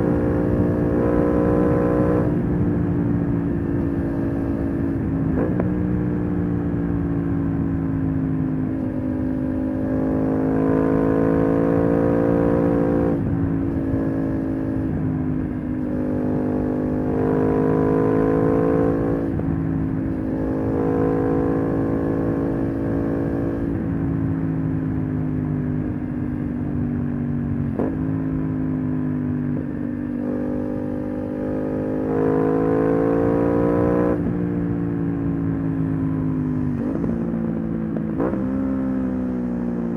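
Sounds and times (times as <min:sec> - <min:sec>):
motorcycle engine revving: 0:29.6 - 0:39.9.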